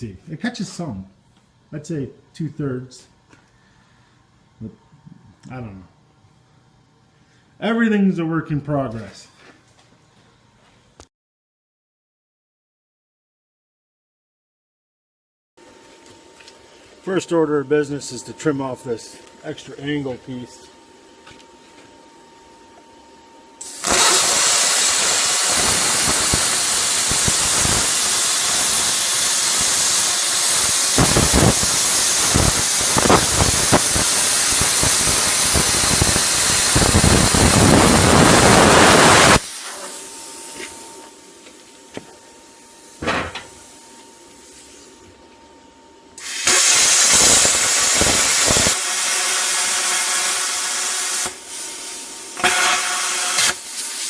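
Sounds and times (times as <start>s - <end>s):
plasma cutter hissing: 23.6s - 41.9s, 42.7s - 44.9s, 46.2s - 54.0s.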